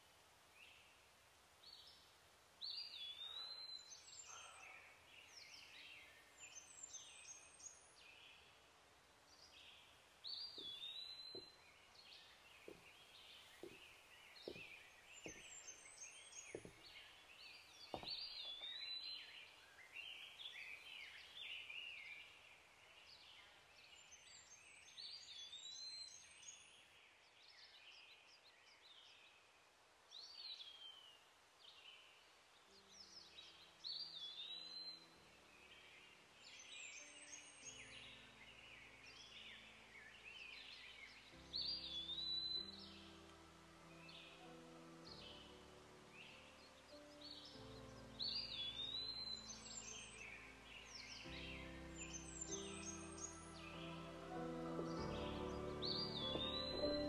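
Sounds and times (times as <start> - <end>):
birds chirping: 1.7 - 29.1, 30.3 - 57.0
soft knocks: 13.6 - 15.6, 16.5 - 16.9, 17.9 - 18.7.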